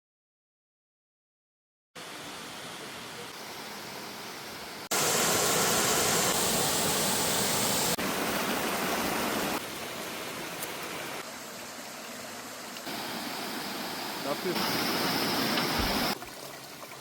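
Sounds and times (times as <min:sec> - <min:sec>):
waterfall rushing: 0:04.9 - 0:11.3, 0:12.8 - 0:16.2.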